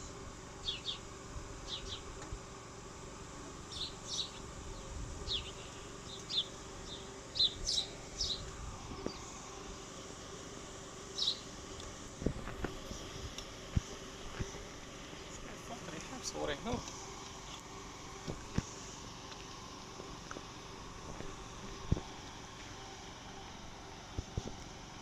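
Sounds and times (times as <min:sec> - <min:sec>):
faint steady hum: 0:00.0 - 0:25.0
small bird chirping: 0:00.6 - 0:01.0, 0:01.6 - 0:02.1, 0:03.7 - 0:09.3, 0:11.1 - 0:11.5.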